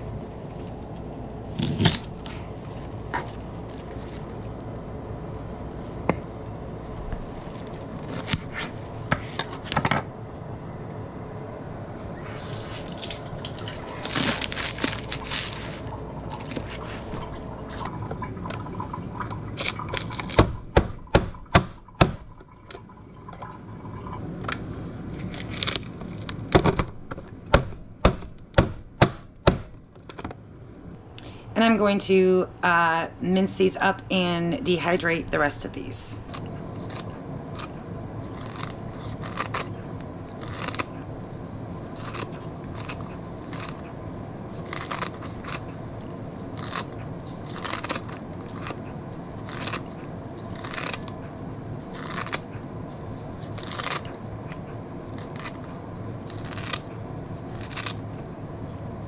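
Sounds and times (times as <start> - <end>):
water running and dripping: 12.8 - 14.1
knife chopping green onions: 20.3 - 22.3.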